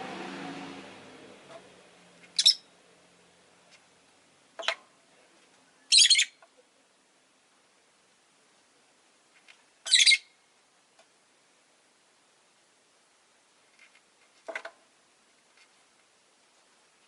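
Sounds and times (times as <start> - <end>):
bird chirping: 2.2 - 2.7, 5.8 - 6.4, 9.8 - 10.4.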